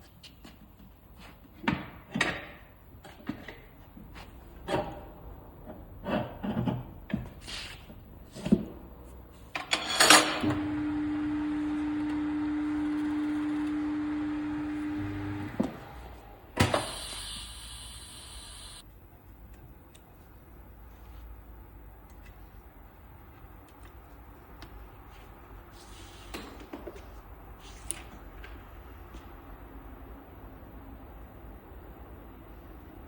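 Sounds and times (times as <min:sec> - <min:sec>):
machine motor humming: 0:10.5 - 0:18.8
hissing air: 0:16.6 - 0:18.8.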